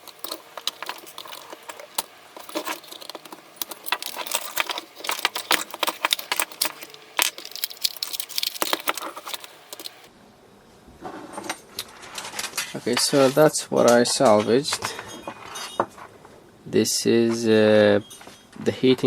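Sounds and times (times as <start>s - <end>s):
small hard parts clicking and rattling: 0.0s - 10.1s.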